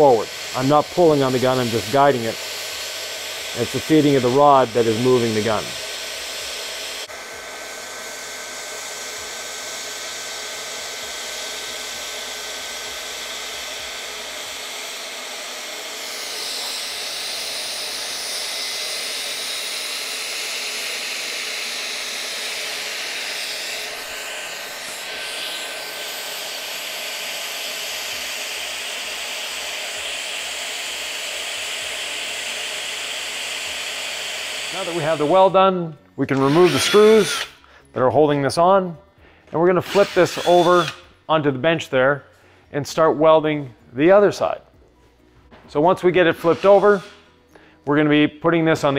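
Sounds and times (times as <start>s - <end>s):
hot air gun hissing: 0.0s - 35.5s, 39.9s - 41.1s, 46.2s - 47.7s.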